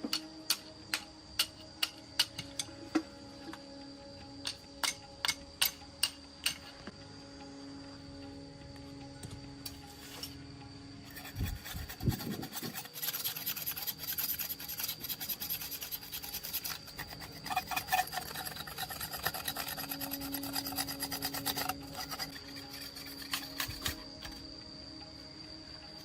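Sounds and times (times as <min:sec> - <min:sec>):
hand tool rasping on metal: 0:11.0 - 0:24.4.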